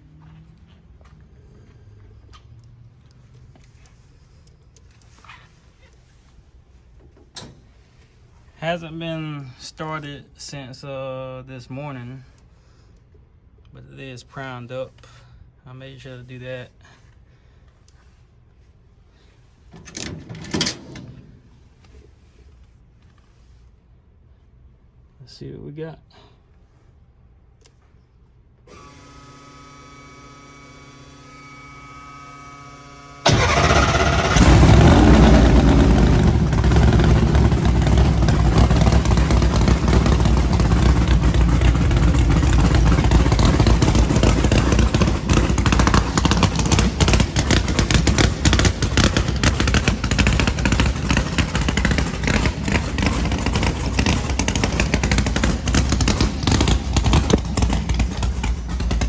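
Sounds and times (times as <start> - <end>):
drag car engine idling roughly: 33.3 - 59.0.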